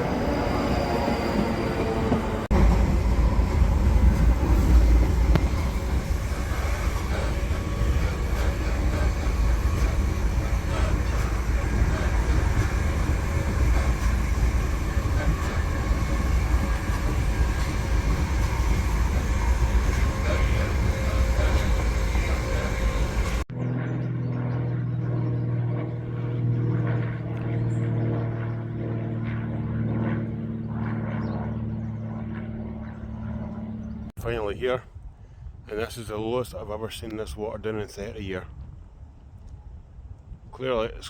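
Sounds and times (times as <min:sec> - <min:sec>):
train ride rumble: 0:00.0 - 0:23.5
low hum with held drone: 0:01.8 - 0:34.1.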